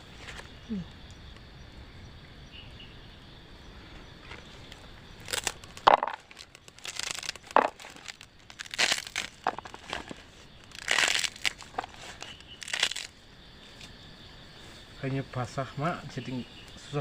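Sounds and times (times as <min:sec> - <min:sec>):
crinkling and crunching handling: 0:04.2 - 0:13.1.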